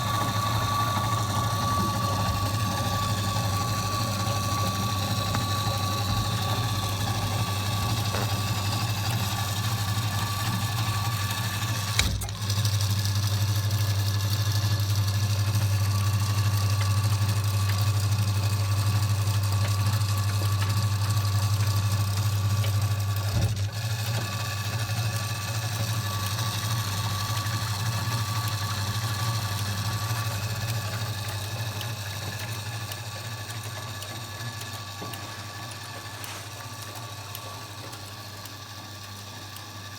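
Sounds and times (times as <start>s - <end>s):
thin steady whine: 0.0s - 12.3s
washing machine hum: 0.0s - 39.9s.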